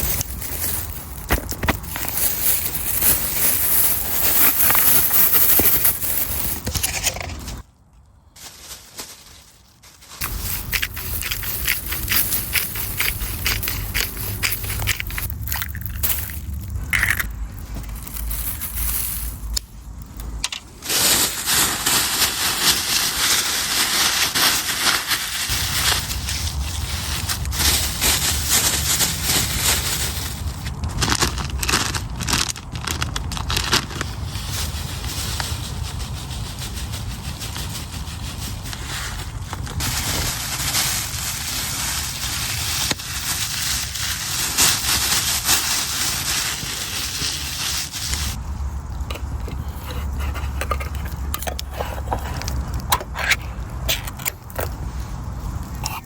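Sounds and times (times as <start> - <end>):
low rumble: 10.2 - 20.5.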